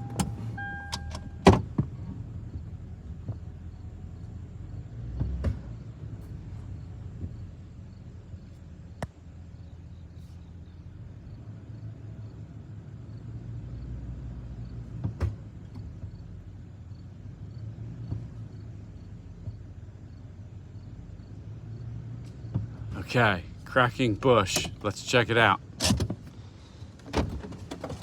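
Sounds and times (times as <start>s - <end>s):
truck engine running: 18.6s - 27.0s.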